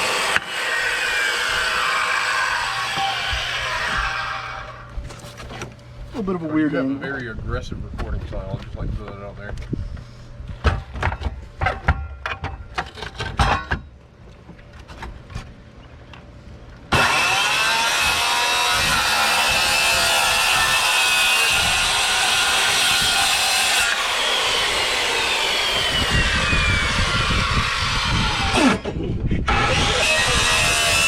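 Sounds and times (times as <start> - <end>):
power saw cutting plywood: 0.0 - 5.8, 16.9 - 31.0.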